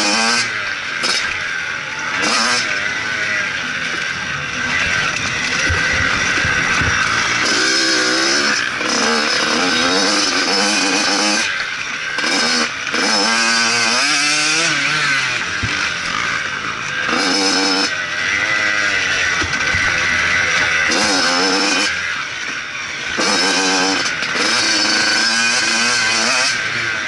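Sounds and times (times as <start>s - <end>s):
motorbike engine revving: 0.0s - 27.0s
heavy rush of noise: 1.5s - 9.8s.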